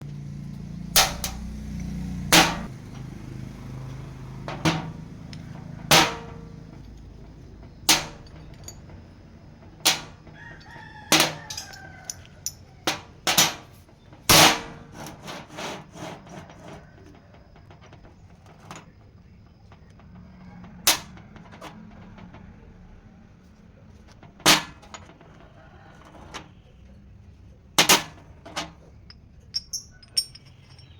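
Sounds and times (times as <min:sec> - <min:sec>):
rooster crowing: 0:10.2 - 0:12.9.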